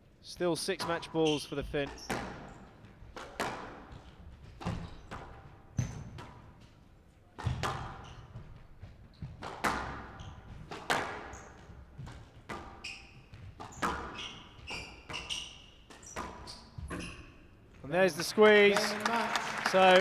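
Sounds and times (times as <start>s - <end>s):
shoes squeaking on court floor: 0.4s - 17.9s
squash ball hits echoing: 1.8s - 4.0s, 7.4s - 8.2s, 9.4s - 12.8s, 13.4s - 14.2s.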